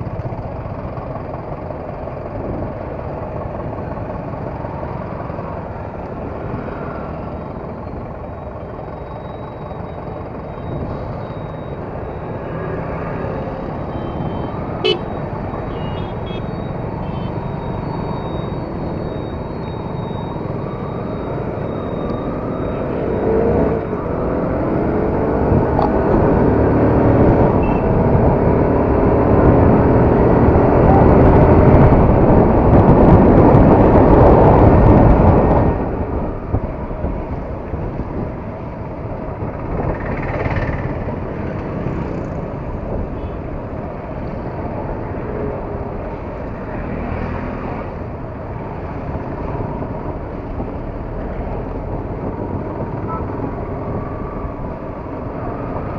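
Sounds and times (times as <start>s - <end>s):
wind rush: 29.3s - 43.1s.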